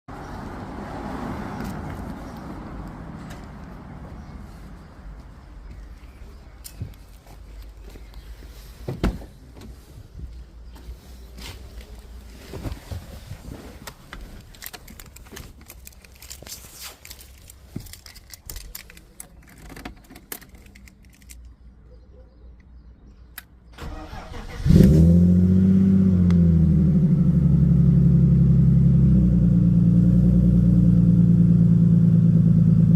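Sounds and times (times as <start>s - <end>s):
small clicks and rattles: 14.4s - 21.6s
car engine starting and idling: 23.7s - 32.9s.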